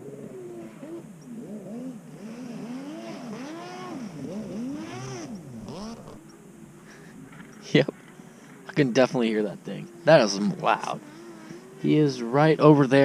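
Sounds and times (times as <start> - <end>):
distant jet ski engine revving: 0.0 - 6.3, 9.8 - 12.6.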